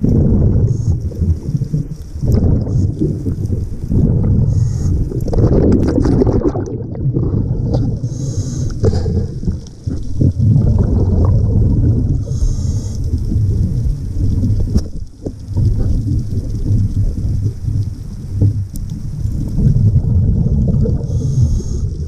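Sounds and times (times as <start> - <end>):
bubbles: 0.0 - 22.0
underwater moving water: 0.0 - 22.0.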